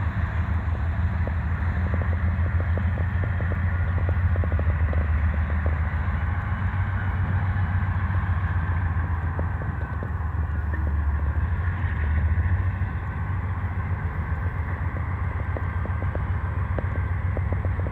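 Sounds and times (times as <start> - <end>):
diesel locomotive engine drone: 0.0 - 17.9
faint clicks: 0.7 - 6.7, 9.2 - 11.4, 14.0 - 17.9.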